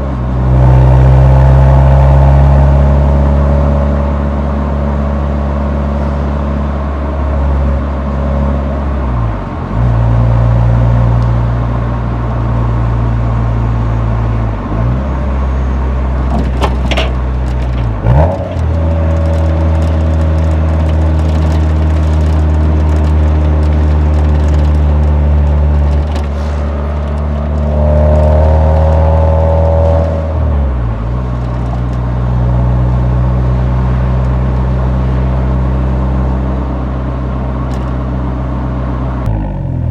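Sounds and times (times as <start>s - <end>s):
car exhaust engine drone: 0.0s - 39.9s
exhaust crackles: 16.2s - 32.4s.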